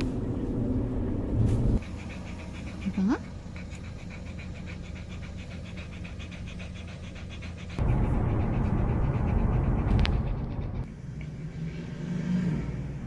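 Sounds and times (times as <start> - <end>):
loud low rumble: 0.0 - 1.8, 7.7 - 10.9
small dog panting: 1.8 - 11.0.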